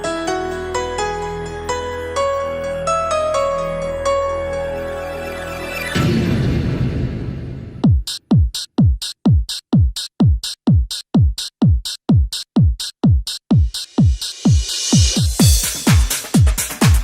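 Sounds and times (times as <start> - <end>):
drum machine kick thumps: 7.7 - 17.0
hi-hat hits: 7.8 - 17.0.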